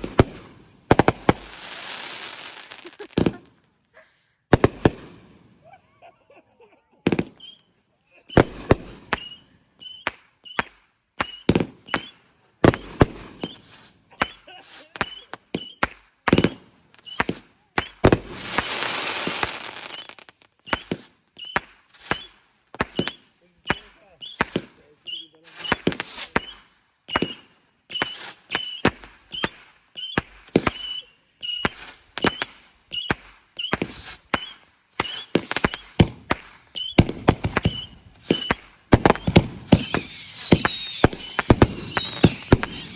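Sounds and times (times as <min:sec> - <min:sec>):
fireworks hissing rush: 0:00.0 - 0:03.4, 0:18.0 - 0:21.1, 0:33.6 - 0:42.9
fireworks bangs and pops: 0:00.0 - 0:03.9, 0:04.5 - 0:05.6, 0:07.0 - 0:07.7, 0:08.3 - 0:42.9.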